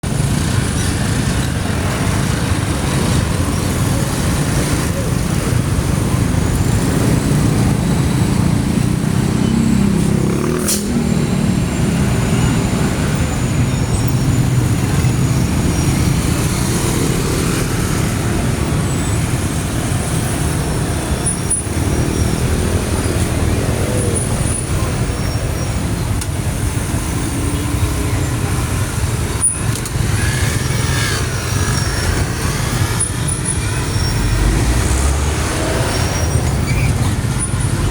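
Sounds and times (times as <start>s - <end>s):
truck engine rumbling: 0.0s - 37.9s.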